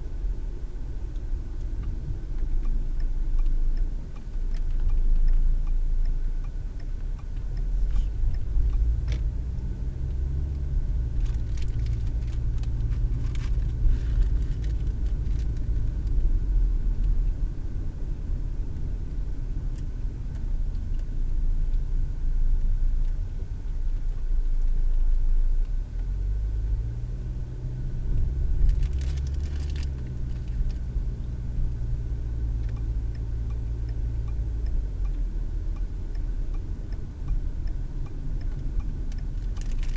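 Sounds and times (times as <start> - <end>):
car engine and road noise: 0.0 - 39.9
sharp clicks and rattles: 11.1 - 16.2, 28.5 - 30.8, 38.4 - 39.9.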